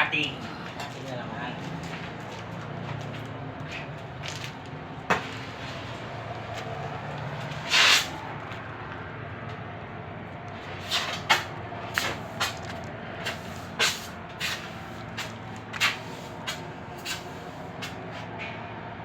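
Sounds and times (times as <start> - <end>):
cutting torch hissing: 7.5 - 8.3.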